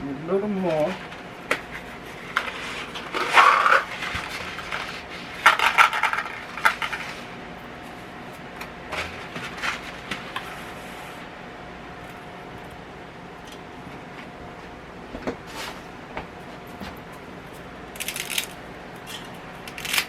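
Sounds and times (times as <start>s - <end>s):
dry spaghetti snapping: 15.2s - 20.0s.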